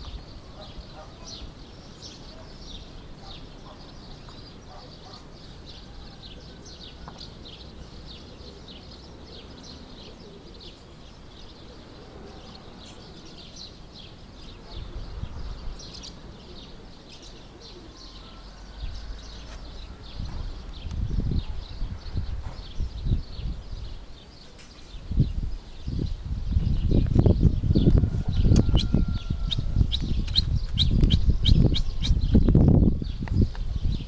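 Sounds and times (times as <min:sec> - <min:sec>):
small birds chirping: 0:00.0 - 0:34.0
wind rumble on microphone: 0:14.5 - 0:16.6, 0:18.5 - 0:24.2, 0:24.9 - 0:34.0.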